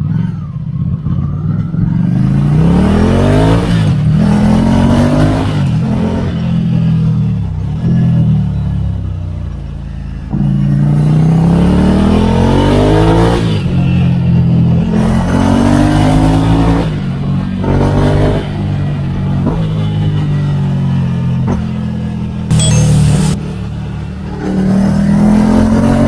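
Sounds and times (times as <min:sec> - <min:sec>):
motorcycle engine accelerating: 0:22.5 - 0:24.0.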